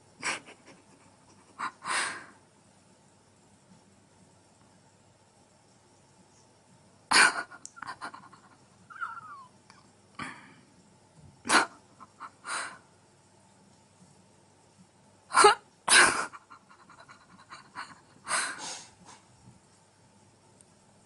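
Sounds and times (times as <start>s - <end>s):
cat hissing: 18.3s - 19.2s.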